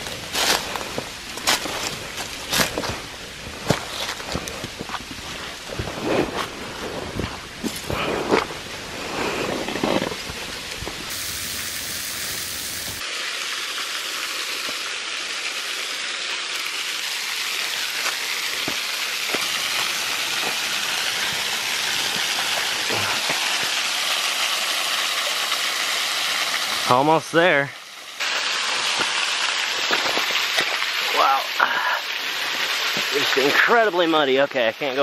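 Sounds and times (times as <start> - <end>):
waterfall rushing: 11.1 - 27.5.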